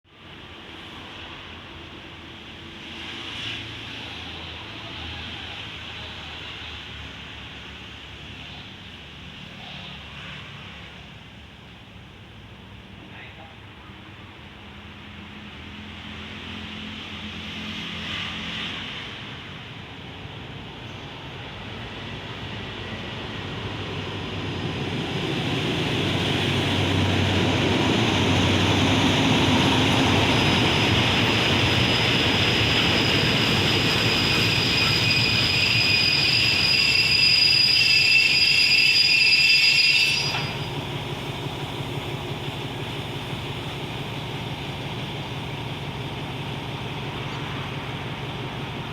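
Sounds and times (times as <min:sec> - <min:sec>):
diesel train running: 0:13.7 - 0:48.9
train brakes squealing: 0:20.8 - 0:41.8.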